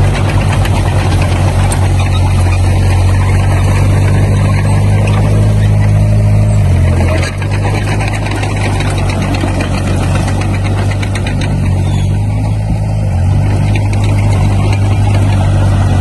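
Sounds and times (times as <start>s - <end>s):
light metallic clatter: 0.0s - 12.6s
diesel engine running: 0.0s - 16.0s.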